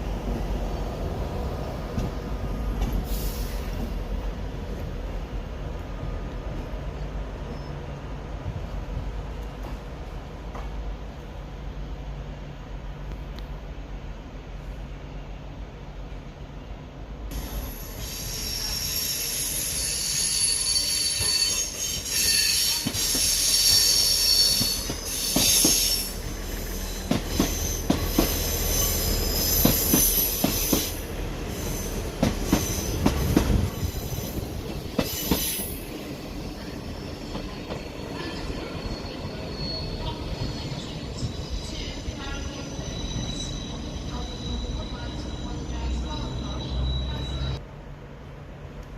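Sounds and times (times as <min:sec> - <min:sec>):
train low rumble: 0:00.0 - 0:48.9
train wheels squealing: 0:07.0 - 0:08.0, 0:17.3 - 0:47.6.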